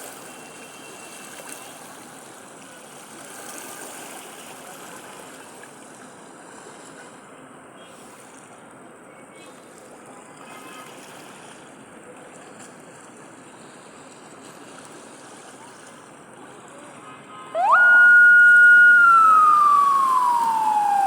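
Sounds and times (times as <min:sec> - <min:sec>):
sea waves: 0:14.9 - 0:21.0
siren wailing: 0:17.6 - 0:21.0.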